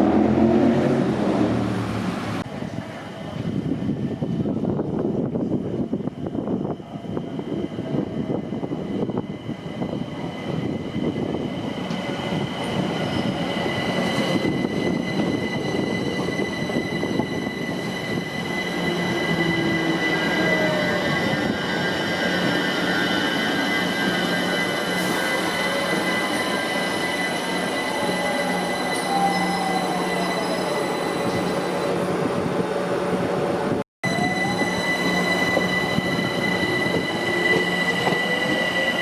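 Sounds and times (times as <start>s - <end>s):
train wheels rumbling on track: 0.0s - 39.0s
high-pitched wheel squeal: 12.0s - 32.1s, 34.0s - 39.0s.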